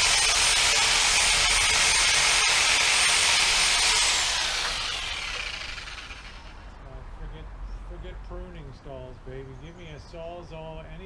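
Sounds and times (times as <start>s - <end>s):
reciprocating saw cutting branch: 0.0s - 6.7s.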